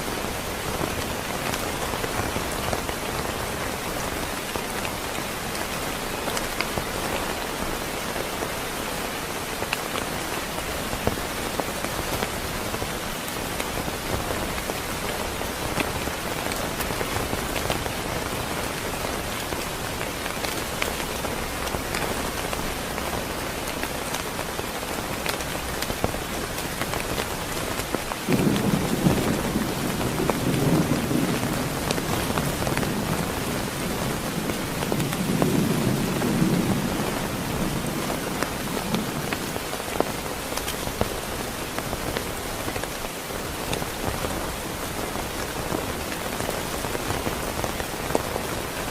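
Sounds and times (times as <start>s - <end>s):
heavy rain falling: 0.0s - 48.9s
rolling thunder: 28.3s - 39.6s.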